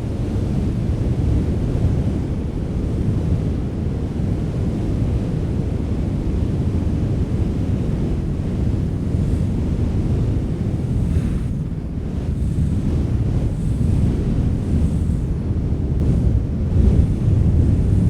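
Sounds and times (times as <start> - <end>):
wind rushing: 8.4 - 18.0.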